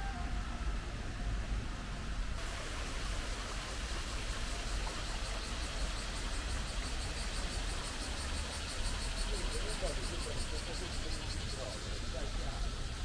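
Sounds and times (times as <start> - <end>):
low outdoor rumble: 0.0 - 6.9
insects chirping: 2.4 - 13.0.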